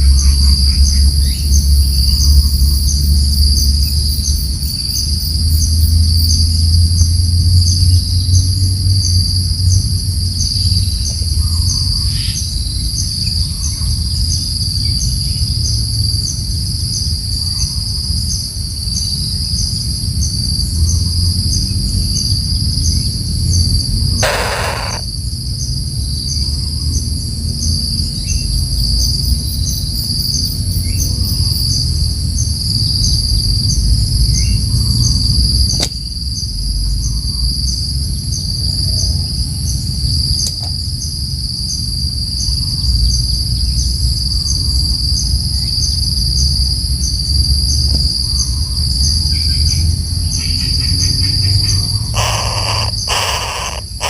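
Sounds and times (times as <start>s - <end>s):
insect chorus: 0.0s - 54.0s
short harsh burst: 24.2s - 25.1s, 52.2s - 54.0s.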